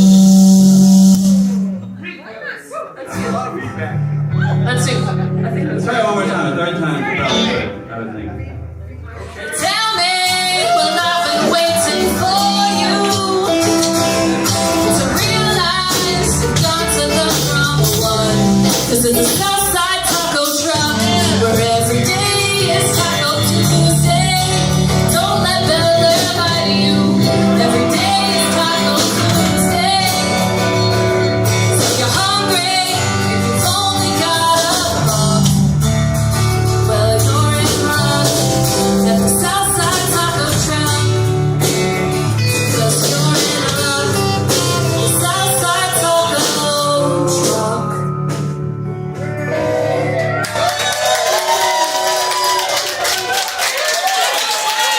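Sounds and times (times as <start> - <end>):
rock band playing: 0.0 - 2.4, 3.2 - 54.9
person singing: 9.5 - 35.8, 36.6 - 41.6, 42.4 - 48.6.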